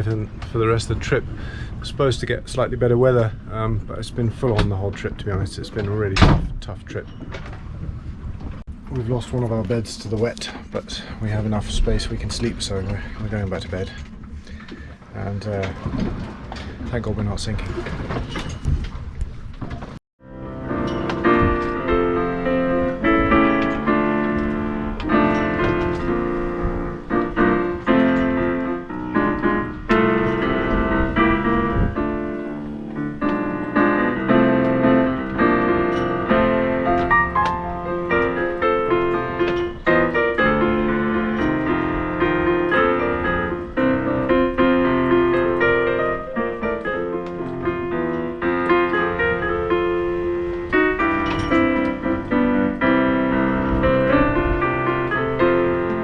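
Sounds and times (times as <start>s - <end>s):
piano melody with chords: 20.2s - 56.0s.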